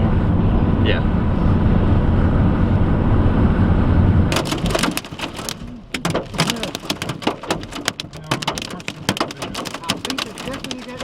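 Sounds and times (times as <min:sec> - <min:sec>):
road rumble inside car: 0:00.0 - 0:11.0
hailstones striking car roof: 0:04.3 - 0:11.0.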